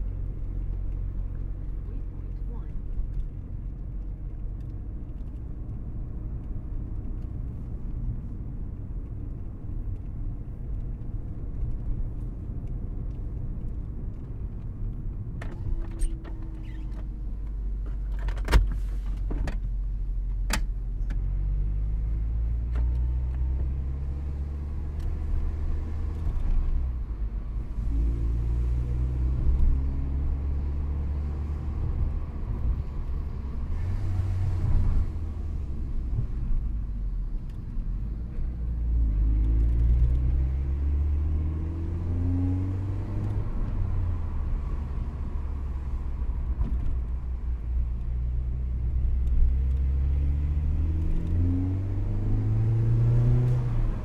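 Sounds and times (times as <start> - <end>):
car engine and road noise: 0.0 - 54.0
engine revving as car accelerates: 21.0 - 54.0.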